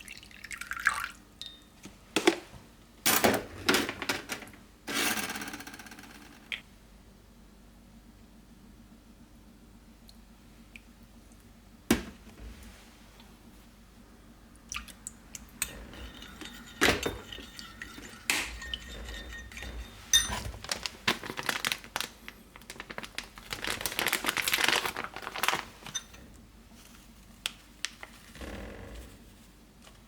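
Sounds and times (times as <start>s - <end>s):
dishes and utensils clinking: 15.6s - 20.8s.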